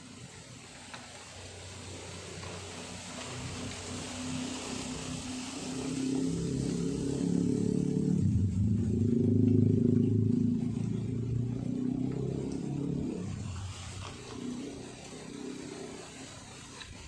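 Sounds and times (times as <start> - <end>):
vehicle engine passing by: 1.8 - 17.0.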